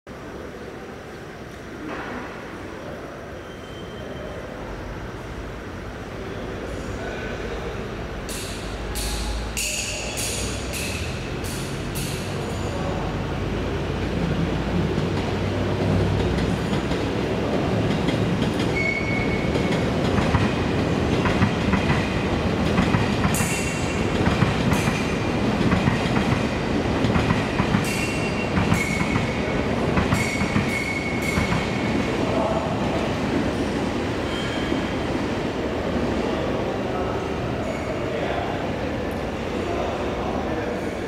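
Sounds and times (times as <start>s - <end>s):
train wheels rumbling on rail: 3.9s - 41.0s
high-pitched squeals: 18.7s - 19.8s.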